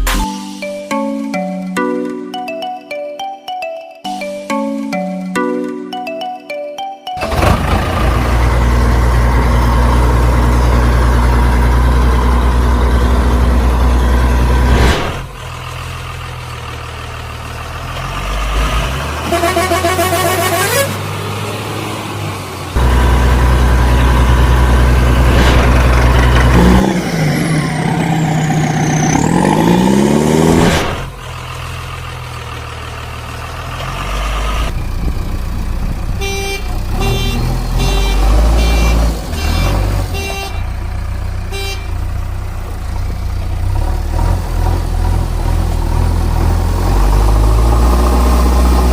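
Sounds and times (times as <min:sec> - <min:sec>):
heavy truck engine droning: 0:07.2 - 0:48.9
truck horn: 0:18.8 - 0:21.4, 0:36.0 - 0:42.4.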